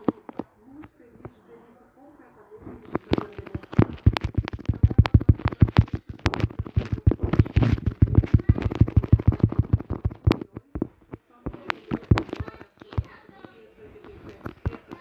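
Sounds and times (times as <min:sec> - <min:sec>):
fast sharp clicks: 0:02.8 - 0:13.5.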